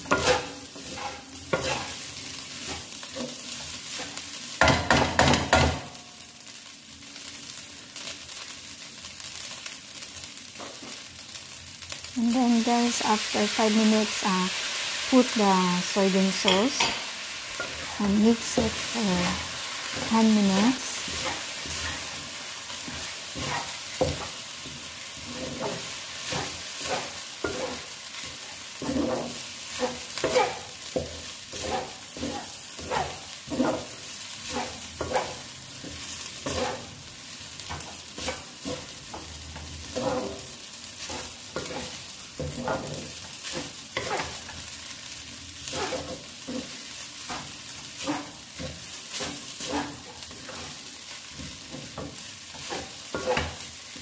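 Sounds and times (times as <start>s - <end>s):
wooden spatula scraping pan: 0.0s - 3.4s, 22.9s - 37.0s, 37.7s - 44.6s, 45.6s - 53.7s
rice sizzling in frying pan: 0.0s - 54.0s.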